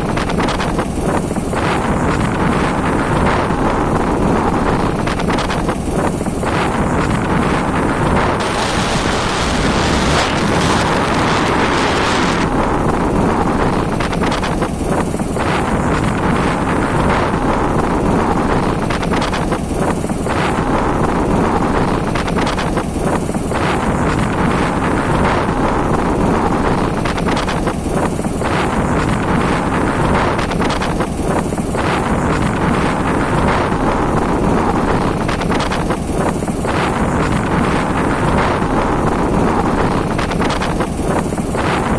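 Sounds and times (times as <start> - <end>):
wind buffeting microphone: 0.0 - 41.9
road noise: 6.5 - 14.6.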